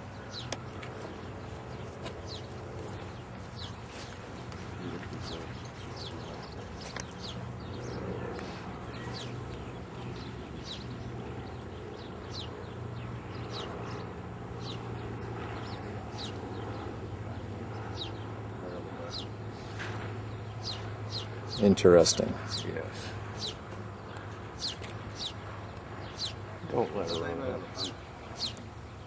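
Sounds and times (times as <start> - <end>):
steady low hum: 0.0 - 29.0
small bird chirping: 0.1 - 29.0.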